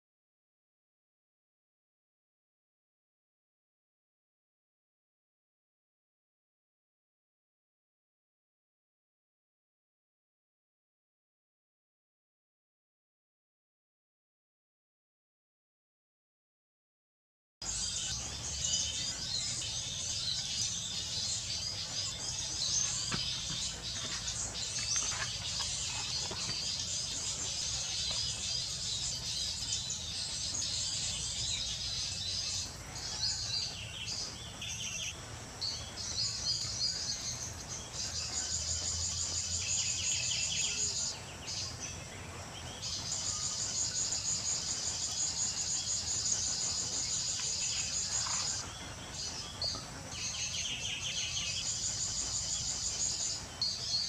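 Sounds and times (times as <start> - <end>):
insects and birds chirping: 17.6 - 54.0.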